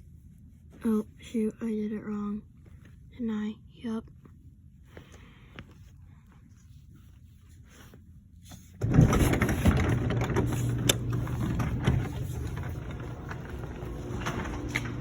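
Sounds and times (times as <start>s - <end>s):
door rattling and clicking: 8.8s - 15.0s
garage door opener motor hum: 8.8s - 15.0s.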